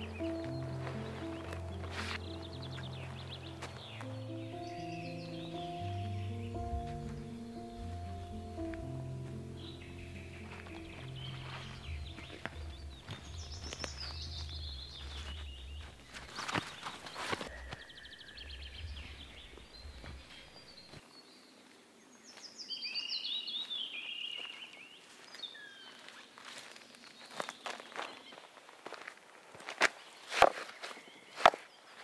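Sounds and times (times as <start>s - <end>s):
songbird trilling: 9.5s - 16.5s.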